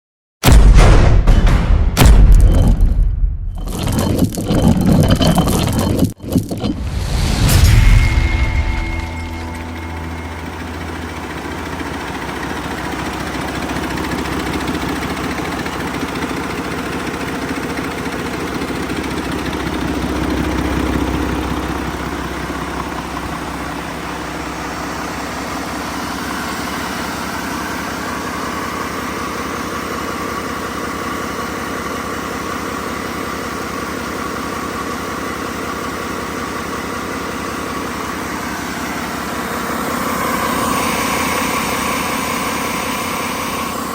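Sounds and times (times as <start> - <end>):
diesel engine idling: 9.4 - 43.9.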